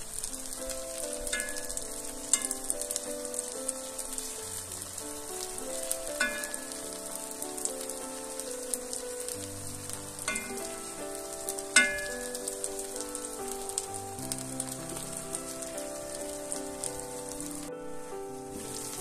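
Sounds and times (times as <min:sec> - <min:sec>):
eggs sizzling in a frying pan: 0:00.0 - 0:19.0
soft background music: 0:00.0 - 0:19.0
metal spoon clinking on pan: 0:06.2 - 0:06.7, 0:10.3 - 0:10.7, 0:11.8 - 0:12.3.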